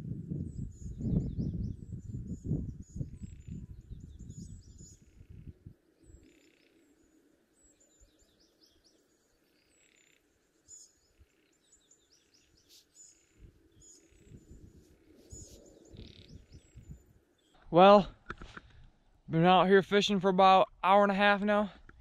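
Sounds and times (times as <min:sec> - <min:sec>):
low rumble on microphone: 0:00.0 - 0:06.2, 0:13.3 - 0:19.4
wild birds chirping: 0:00.5 - 0:19.3.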